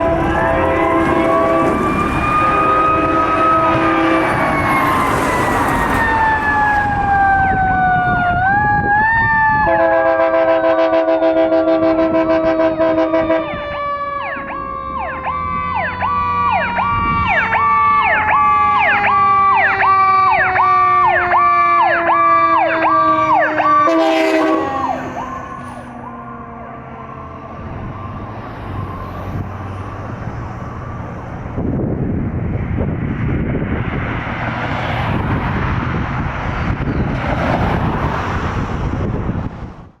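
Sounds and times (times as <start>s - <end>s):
air horn blast: 0.0s - 2.0s, 2.6s - 4.8s, 9.6s - 13.7s, 22.7s - 25.8s
mechanical siren winding down: 0.0s - 10.0s, 13.4s - 31.3s
electronic siren yelping: 0.0s - 10.8s, 12.6s - 29.9s
truck engine and road noise: 0.0s - 40.0s.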